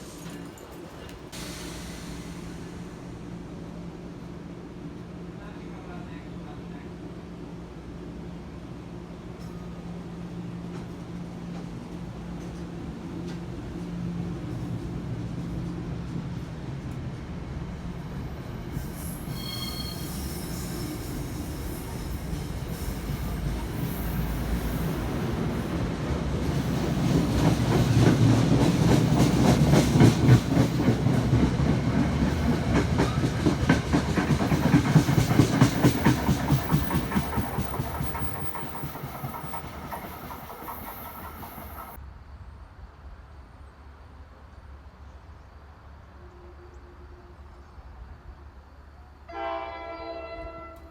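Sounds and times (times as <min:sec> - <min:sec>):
train wheels clicking over rails: 0:20.2 - 0:42.0.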